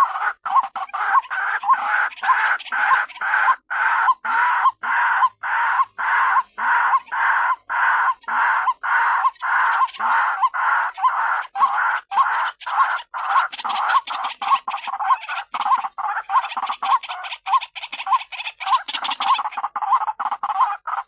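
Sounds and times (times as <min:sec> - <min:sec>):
waterhen calling harshly: 0:00.0 - 0:21.0.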